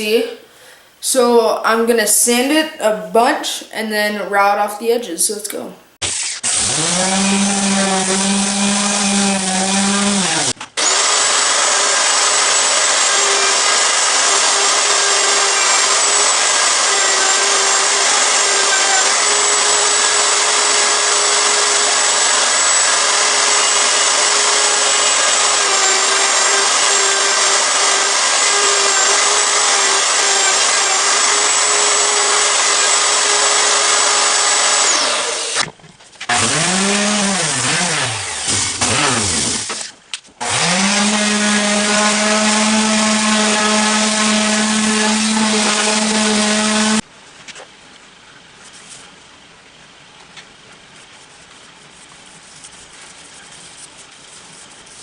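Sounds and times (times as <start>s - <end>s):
electric sander running: 6.0s - 35.7s, 36.3s - 47.0s
router whining: 6.0s - 35.7s, 36.3s - 47.0s.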